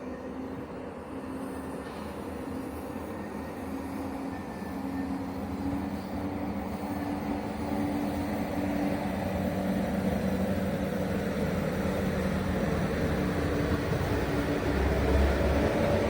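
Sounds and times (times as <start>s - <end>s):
train rumbling hum: 0.0s - 16.0s.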